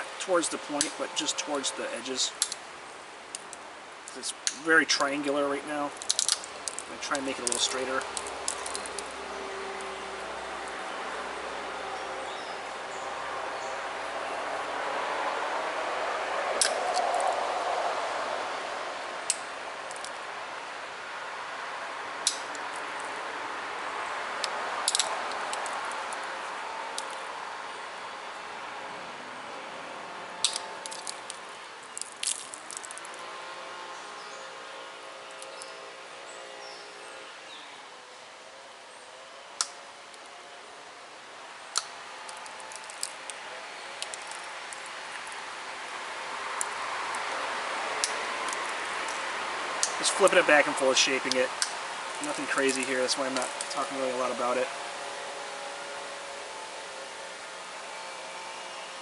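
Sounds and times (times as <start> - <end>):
steady hiss: 0.0 - 59.0
stone flakes popping clicks: 6.0 - 9.1, 24.4 - 26.2, 30.4 - 33.1, 41.7 - 43.4, 44.0 - 45.4.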